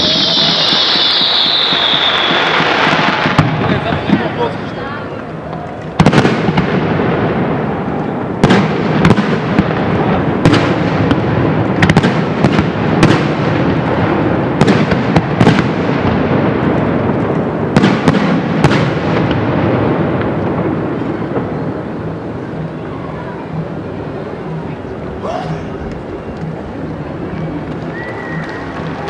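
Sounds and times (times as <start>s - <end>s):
fireworks bangs: 0.0s - 22.8s
fireworks crackling and rumbling: 0.0s - 29.0s.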